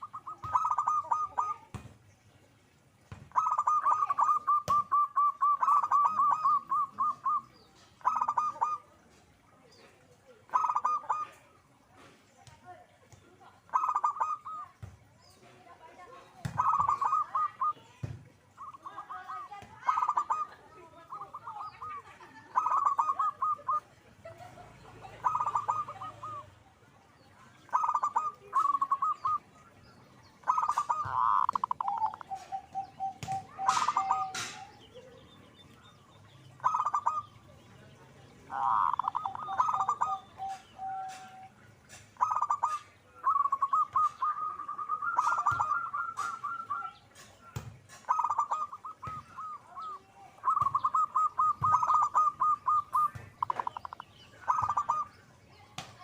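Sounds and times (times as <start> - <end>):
doves cooing: 0.0 - 1.9, 2.6 - 9.2, 9.8 - 12.2, 13.4 - 15.4, 16.0 - 55.4.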